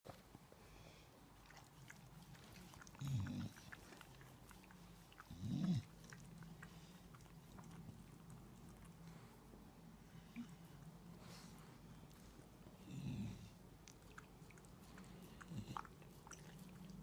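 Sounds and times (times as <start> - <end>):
dog grunting: 2.8 - 4.0, 5.2 - 6.2.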